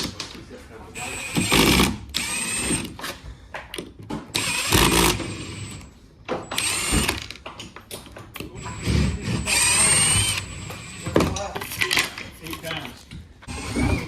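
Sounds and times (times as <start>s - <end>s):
power drill whining: 1.0s - 3.1s, 4.3s - 7.4s, 8.6s - 11.2s, 13.5s - 14.0s.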